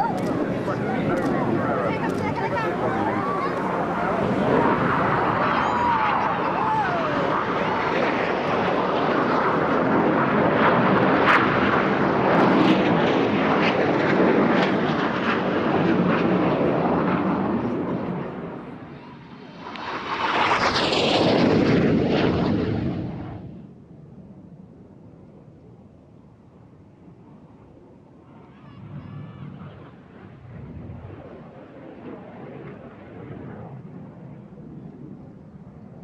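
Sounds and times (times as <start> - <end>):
jet aircraft flying past: 0.0 - 26.0, 26.6 - 36.0.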